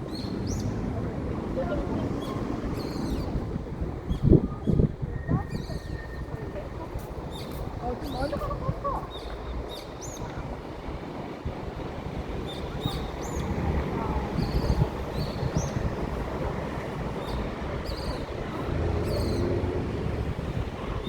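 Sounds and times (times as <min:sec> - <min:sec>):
small birds chirping: 0:00.0 - 0:01.0, 0:02.0 - 0:03.5, 0:04.1 - 0:10.4, 0:17.1 - 0:19.8
wind on microphone: 0:00.0 - 0:21.0.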